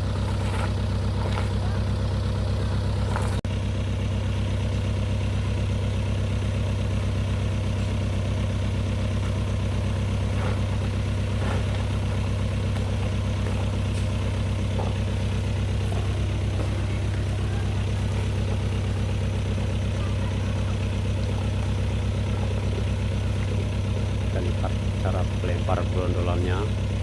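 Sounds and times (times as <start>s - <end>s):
truck engine idling: 0.0s - 27.0s.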